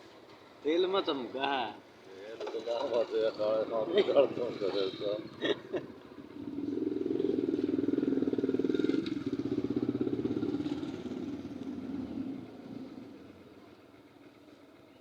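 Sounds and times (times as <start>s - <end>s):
motorcycle engine running: 5.3s - 15.0s.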